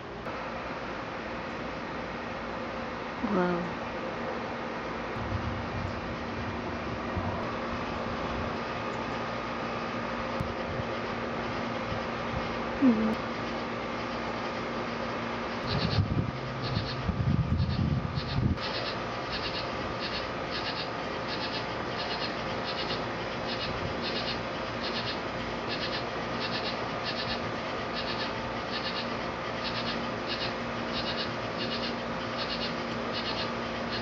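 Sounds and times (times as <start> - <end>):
insect chirping in trills: 15.7 - 17.0, 17.6 - 34.0.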